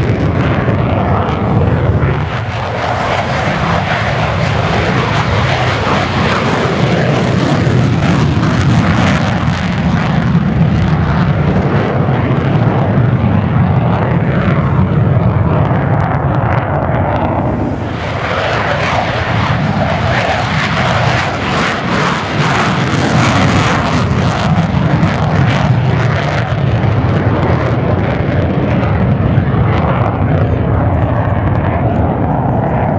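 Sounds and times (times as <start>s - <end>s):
jet fighters flying by: 0.0s - 32.9s.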